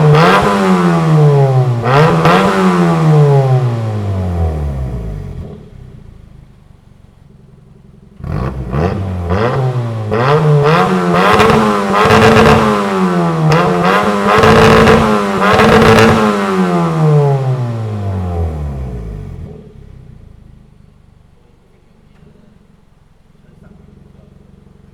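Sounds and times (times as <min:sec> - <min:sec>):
car engine revving: 0:00.0 - 0:24.9.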